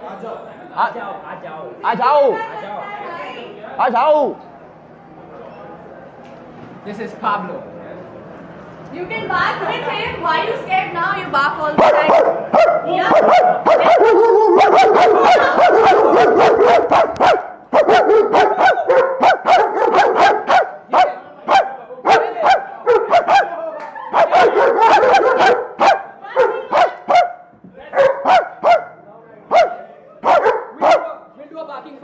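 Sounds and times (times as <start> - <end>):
dog barking: 11.8 - 31.2.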